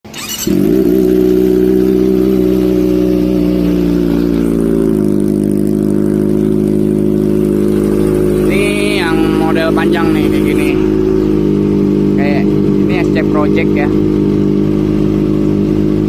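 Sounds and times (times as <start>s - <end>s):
motorcycle engine idling: 0.1s - 16.0s.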